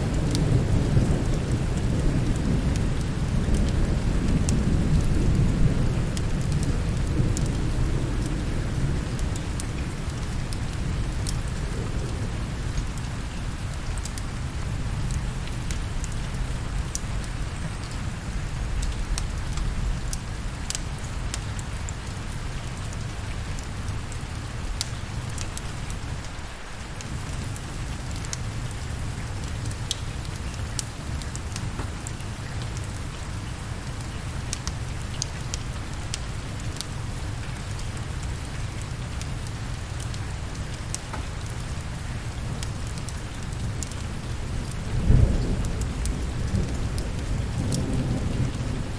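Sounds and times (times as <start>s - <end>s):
low rumble of thunder: 0.0s - 26.4s, 39.3s - 48.9s
steady rain: 0.0s - 48.9s
wood fire crackling: 6.1s - 22.3s, 33.8s - 48.0s.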